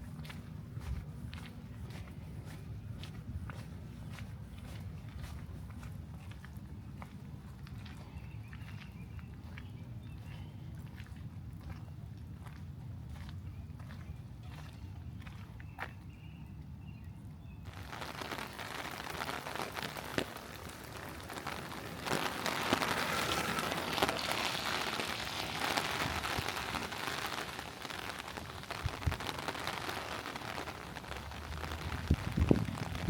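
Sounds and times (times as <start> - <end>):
rain falling: 17.7 - 33.0.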